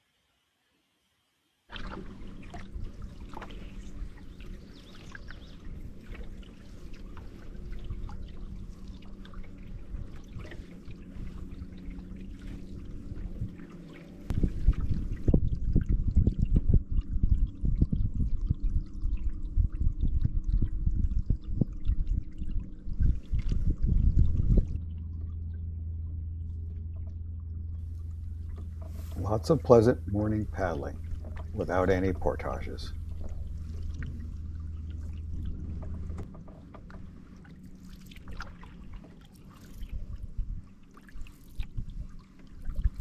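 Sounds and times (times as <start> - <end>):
low uneven rumbling: 1.7 - 43.0
water trickling off paddle: 1.7 - 43.0.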